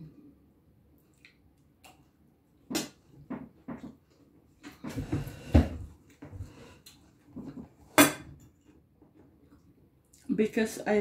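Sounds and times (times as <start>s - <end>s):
chewing and mouth smacks: 1.0s - 2.2s.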